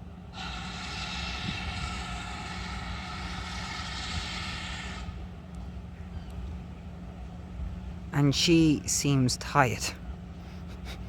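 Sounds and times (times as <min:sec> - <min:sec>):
steady low rumble: 0:00.0 - 0:11.0
locomotive steam hiss: 0:00.3 - 0:05.3.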